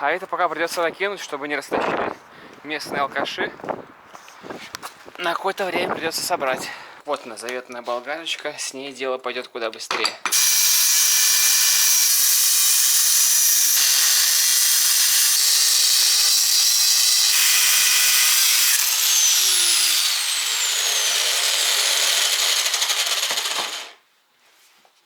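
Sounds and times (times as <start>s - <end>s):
angle grinder cutting metal: 10.3s - 24.0s.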